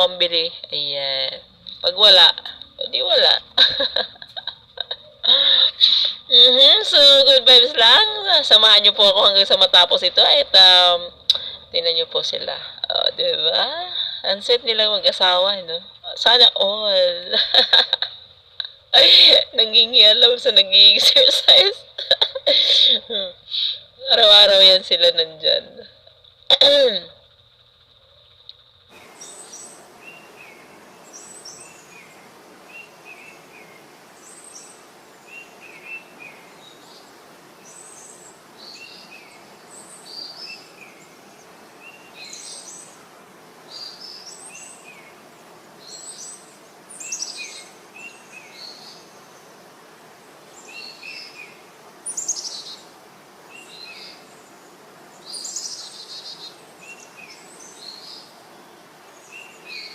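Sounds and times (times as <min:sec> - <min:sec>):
birds singing and chirping: 0:00.0 - 0:59.9
steady hiss: 0:00.0 - 0:59.9.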